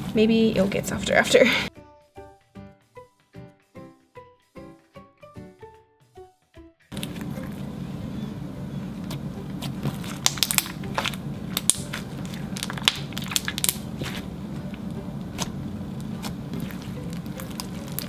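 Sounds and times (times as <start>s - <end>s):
steady low hum: 6.9s - 18.0s.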